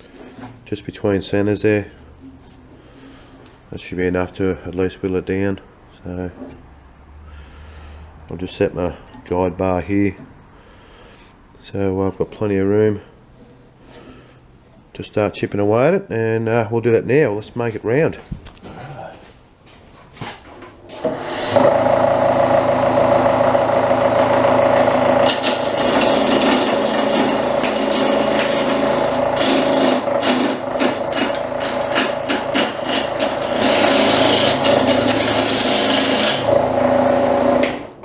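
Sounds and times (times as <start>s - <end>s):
wood lathe motor humming: 21.0s - 38.0s
chisel knocking on spinning wood: 24.8s - 37.9s.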